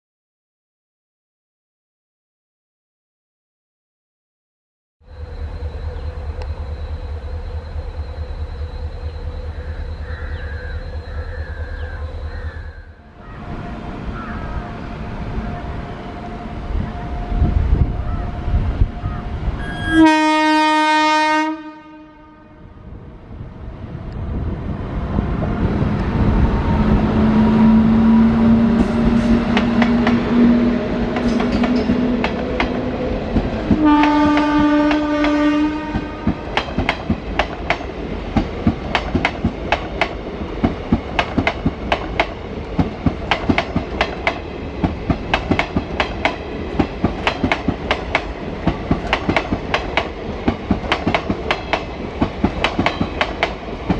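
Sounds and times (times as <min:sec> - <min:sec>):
train approaching low tone: 0:05.0 - 0:53.9
train horn: 0:09.7 - 0:23.0, 0:26.5 - 0:32.9, 0:33.6 - 0:36.5
train wheels clattering over rail joints: 0:31.0 - 0:35.4, 0:36.0 - 0:53.9.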